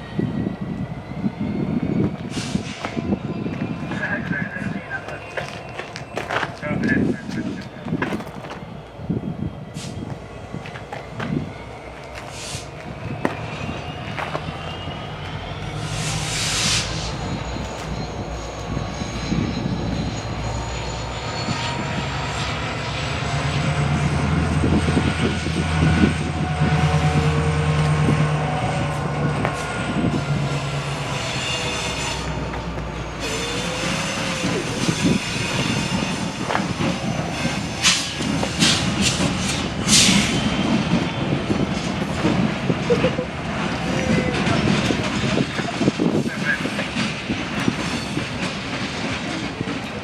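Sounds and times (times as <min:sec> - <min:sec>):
locomotive engine drone: 0:00.0 - 0:50.0
wheels squealing on rails: 0:00.0 - 0:50.0.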